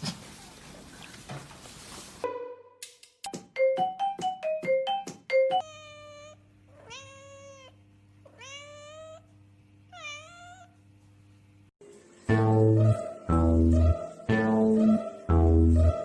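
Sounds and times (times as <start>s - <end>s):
cat meowing: 5.6s - 9.3s, 9.9s - 10.7s.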